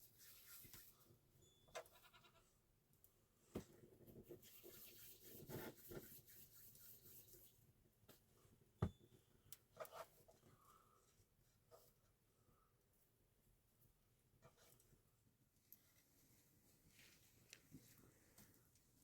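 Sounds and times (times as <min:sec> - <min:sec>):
farm animal bleating: 0:01.8 - 0:02.5
faint rustling: 0:15.6 - 0:19.0.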